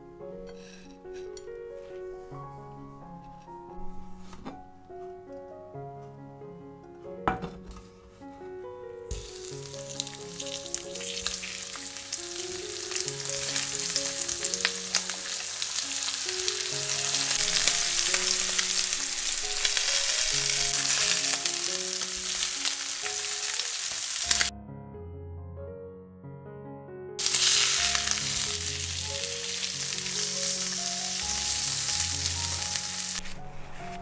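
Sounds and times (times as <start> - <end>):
fish sizzling in a frying pan: 9.1 - 24.5, 27.2 - 33.2.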